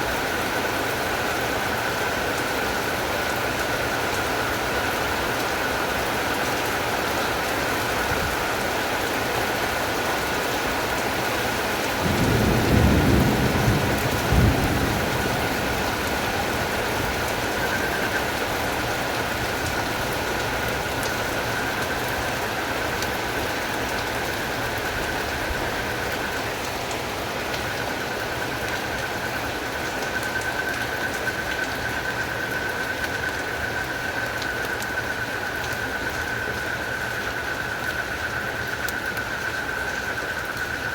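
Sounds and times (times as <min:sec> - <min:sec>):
frogs and crickets chorus: 0:00.0 - 0:40.9
steady rain falling: 0:00.0 - 0:40.9
low thunder rumble: 0:12.0 - 0:20.8.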